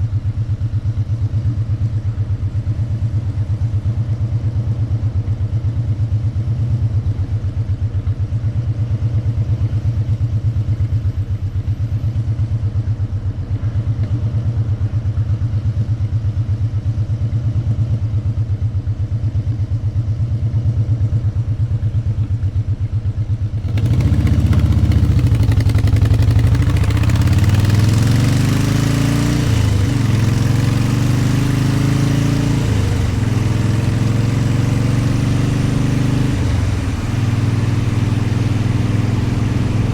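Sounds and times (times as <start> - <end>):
motorcycle engine: 18.1 - 39.9.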